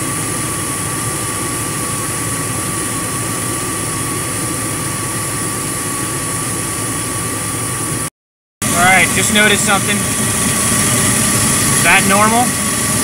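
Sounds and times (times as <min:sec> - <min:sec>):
car engine idling: 0:08.7 - 0:13.0
faint steady whine: 0:08.7 - 0:13.0.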